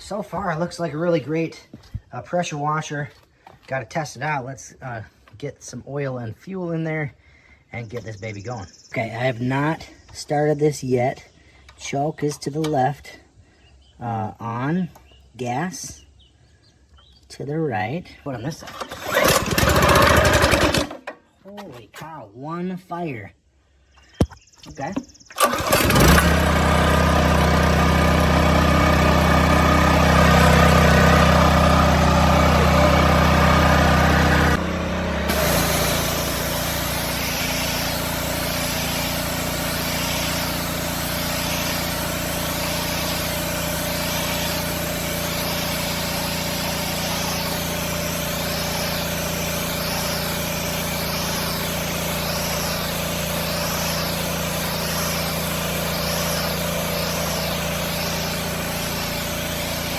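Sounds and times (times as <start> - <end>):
pressure washer engine running: 18.6 - 21.1, 24.9 - 59.9
high water spray hiss: 35.3 - 59.9.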